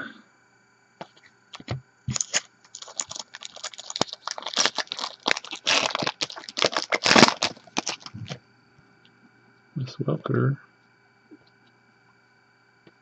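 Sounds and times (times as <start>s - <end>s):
plastic packaging crumpling: 1.6s - 8.4s
trading cards handled: 1.6s - 8.4s.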